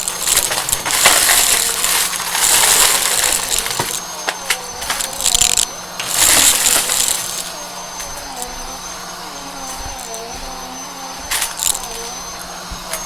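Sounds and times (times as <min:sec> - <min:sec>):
debris clicking and rattling: 0:00.0 - 0:08.6, 0:11.2 - 0:12.3
vacuum cleaner running: 0:00.0 - 0:13.0.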